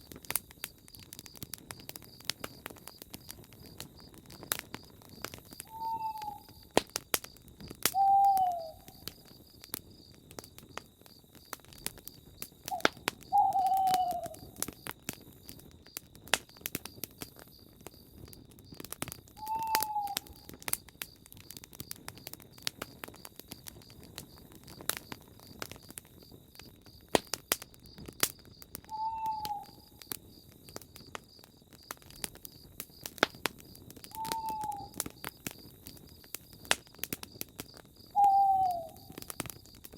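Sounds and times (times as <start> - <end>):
campfire crackling and popping: 0.0 - 39.9
bird falling call: 5.7 - 6.5, 8.0 - 8.9, 12.7 - 14.4, 19.4 - 20.2, 28.9 - 29.7, 34.2 - 34.9, 38.2 - 39.1.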